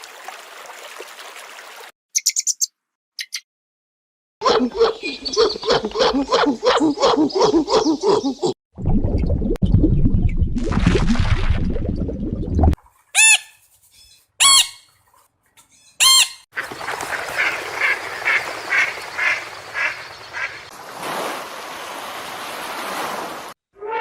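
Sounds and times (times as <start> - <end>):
waterfowl honking: 13.2 - 13.6, 14.4 - 15.0, 16.0 - 20.7
steady outdoor hiss: 16.6 - 22.4.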